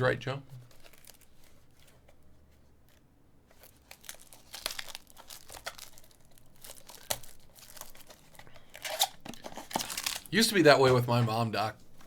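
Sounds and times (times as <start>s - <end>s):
wrappers crinkling and tearing: 0.6s - 2.0s, 2.8s - 10.5s.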